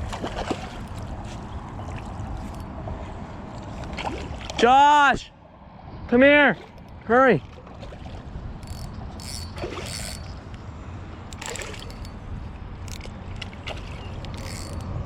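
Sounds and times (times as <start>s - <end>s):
water splashing: 0.0s - 2.6s, 7.4s - 10.5s, 12.9s - 14.8s.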